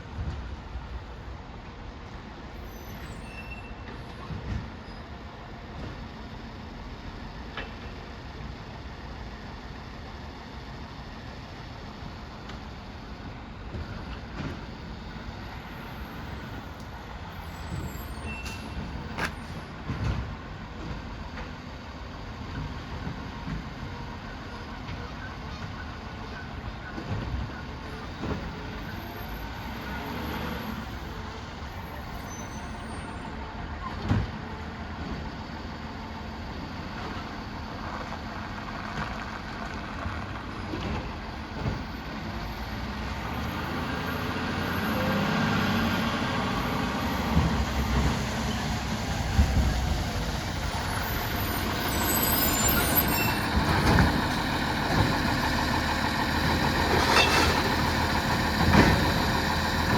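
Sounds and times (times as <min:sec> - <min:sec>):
garbage truck engine running: 0:45.8 - 0:59.9.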